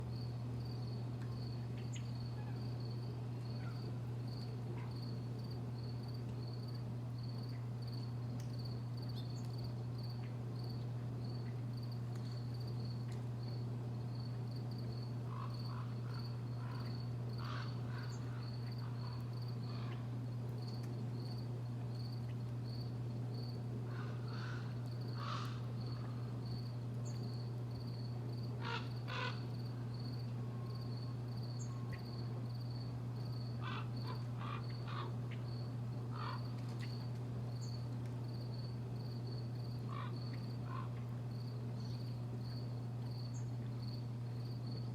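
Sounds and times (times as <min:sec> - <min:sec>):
constant low hum: 0:00.0 - 0:44.9
cricket chirping: 0:00.1 - 0:44.9
bird calls: 0:15.3 - 0:20.1, 0:23.9 - 0:26.2, 0:33.6 - 0:35.5.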